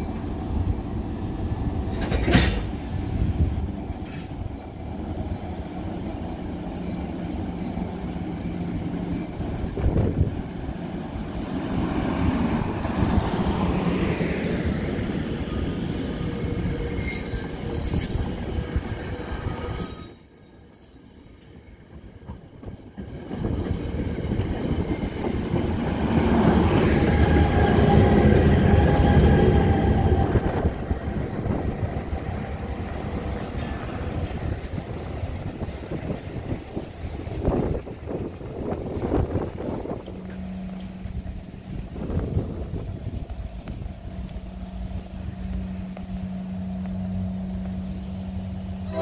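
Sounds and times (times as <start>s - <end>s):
train wheels rumbling on rails: 0.0s - 49.0s
thin wheel squeal: 16.7s - 18.3s.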